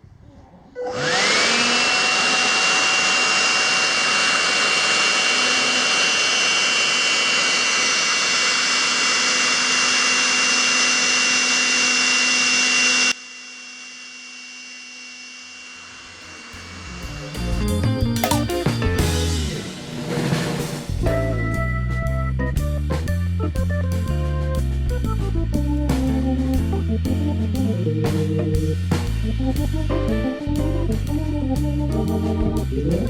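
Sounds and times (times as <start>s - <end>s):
stick vacuum motor whirring: 0.8s - 18.7s.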